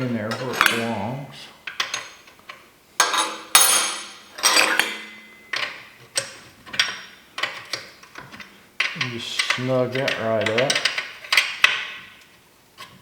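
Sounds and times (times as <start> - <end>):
metallic clinks of tools: 3.0 - 5.7.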